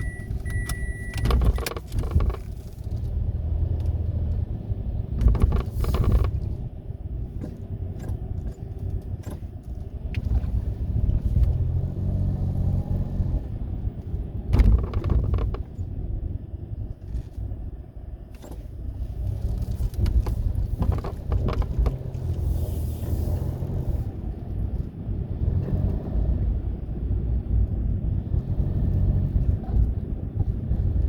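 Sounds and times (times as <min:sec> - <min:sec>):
car engine running: 0:00.0 - 0:31.0
short rattles or knocks: 0:00.4 - 0:03.0, 0:05.2 - 0:06.6, 0:14.5 - 0:15.7, 0:19.4 - 0:22.4.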